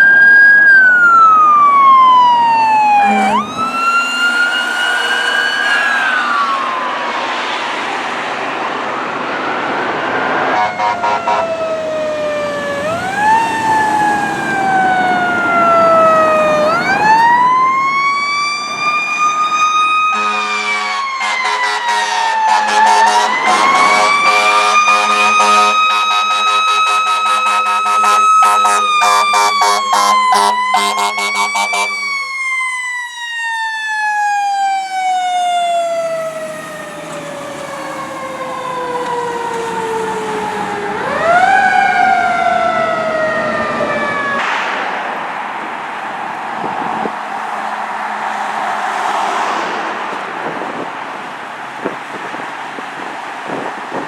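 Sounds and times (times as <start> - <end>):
fire truck siren wailing: 0.0 - 54.0
steady low horn: 2.8 - 4.0, 10.5 - 11.9, 20.1 - 32.4.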